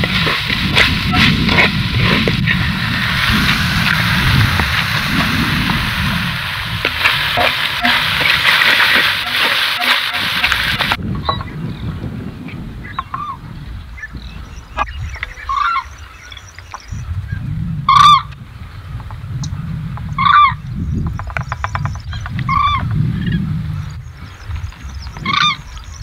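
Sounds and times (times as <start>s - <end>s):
low rumble: 0.0s - 16.3s
large bird calling: 12.8s - 18.4s, 19.4s - 26.0s.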